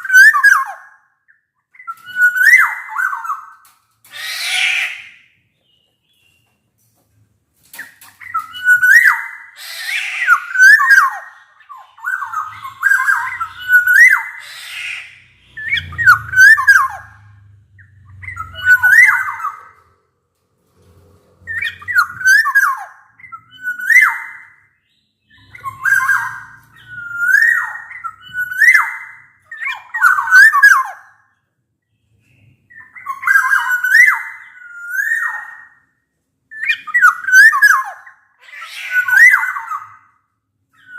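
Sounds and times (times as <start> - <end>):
bird whistled calls: 8.2 - 19.8, 21.5 - 31.1, 32.7 - 35.8, 36.5 - 38.2.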